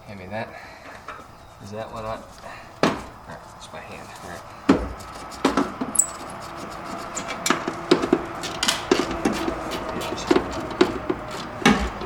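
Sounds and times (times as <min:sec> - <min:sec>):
hand tools clinking on metal: 0:05.9 - 0:06.2, 0:07.1 - 0:12.0.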